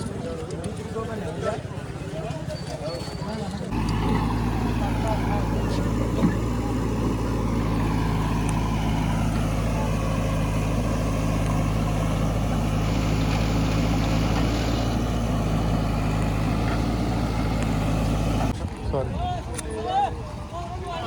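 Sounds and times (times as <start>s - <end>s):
vehicle engine running steadily: 3.7s - 18.6s.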